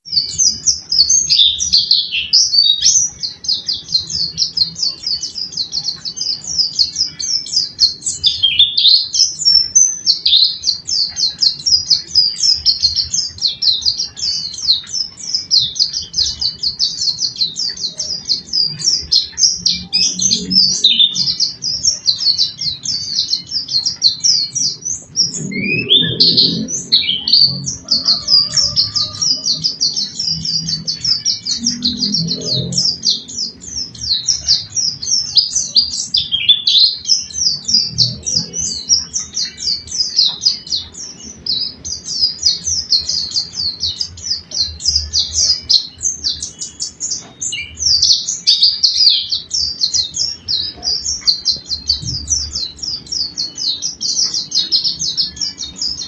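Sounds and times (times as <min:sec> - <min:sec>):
songbird twittering chirps: 0:00.0 - 0:56.0
low swooping bird notes: 0:15.9 - 0:36.4
low rumble: 0:24.6 - 0:35.2.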